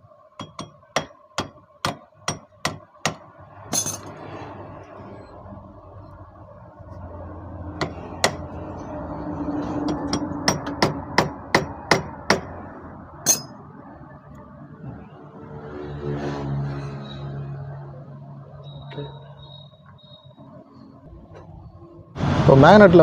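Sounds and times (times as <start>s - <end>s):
hammer striking metal: 0.4s - 4.2s, 7.8s - 8.5s, 9.8s - 12.5s, 13.2s - 13.6s.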